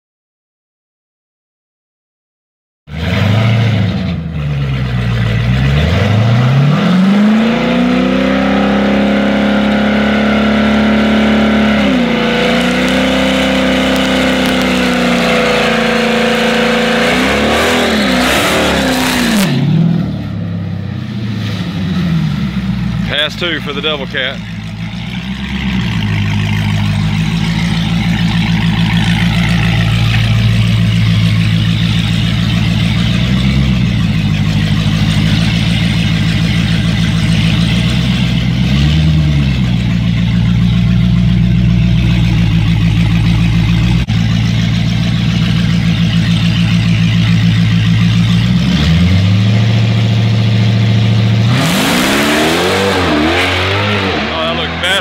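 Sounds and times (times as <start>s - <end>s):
car engine idling: 2.9s - 7.9s, 8.6s - 55.0s
car accelerating through gear changes: 51.3s - 55.0s.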